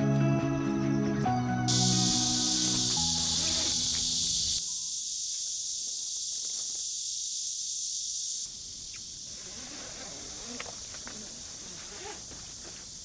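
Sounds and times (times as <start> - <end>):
background music: 0.0 - 4.7.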